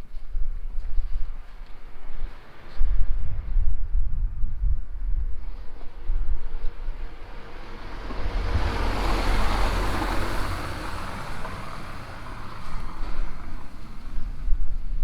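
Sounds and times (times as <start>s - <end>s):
car tyres hissing on wet street: 7.0s - 14.6s.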